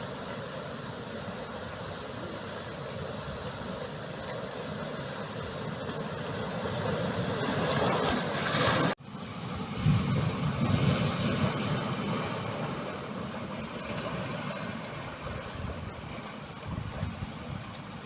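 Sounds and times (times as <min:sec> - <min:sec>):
ocean surf on rocky shore: 0:00.0 - 0:18.0.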